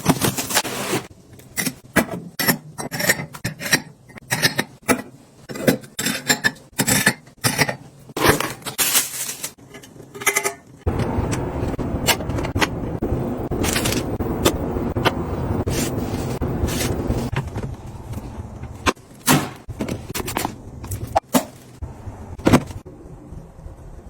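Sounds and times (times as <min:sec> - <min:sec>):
steady low hum: 0:09.7 - 0:24.0.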